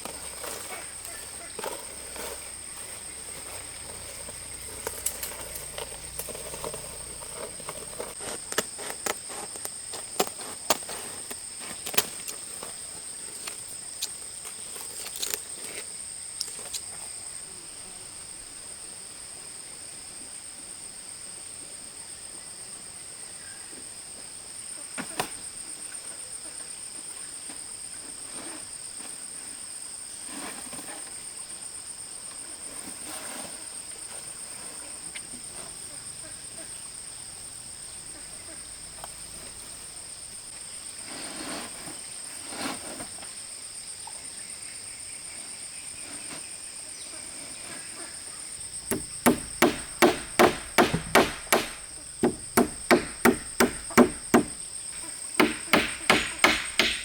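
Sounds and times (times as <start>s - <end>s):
insects chirring: 0.0s - 30.2s, 31.0s - 42.4s, 43.0s - 57.0s
sharp clicks and knocks: 48.8s - 54.6s, 55.4s - 57.0s.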